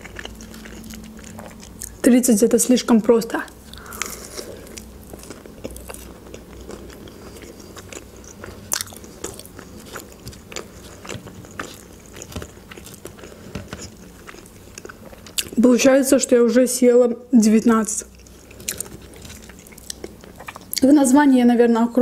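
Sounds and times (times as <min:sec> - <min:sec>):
chewing crunchy food: 0:00.0 - 0:02.1, 0:03.4 - 0:15.6, 0:17.8 - 0:20.9.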